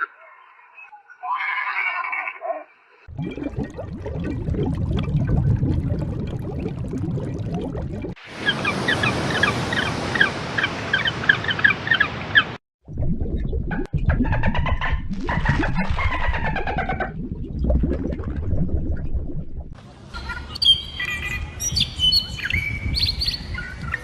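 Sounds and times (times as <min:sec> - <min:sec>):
jumble of animal calls: 0:20.0 - 0:24.0
high animal chirps: 0:20.1 - 0:24.0.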